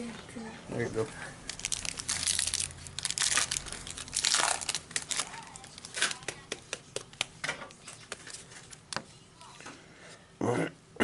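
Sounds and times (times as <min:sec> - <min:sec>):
packaging crackling: 0:01.4 - 0:09.0
card pack wrapper tearing: 0:01.5 - 0:06.4.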